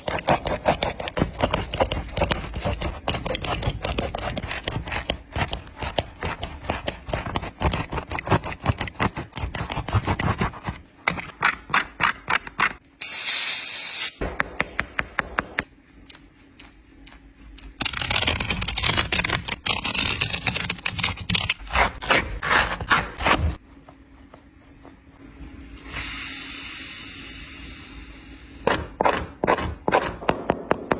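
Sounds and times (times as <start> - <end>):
hiss: 13.0 - 14.2, 25.8 - 28.6.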